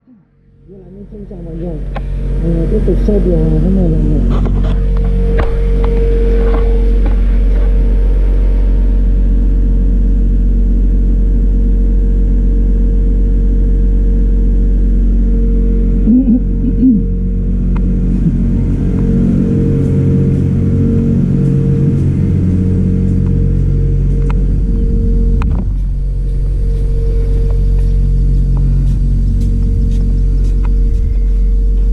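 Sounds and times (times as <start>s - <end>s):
pressure washer motor humming: 15.0s - 31.9s.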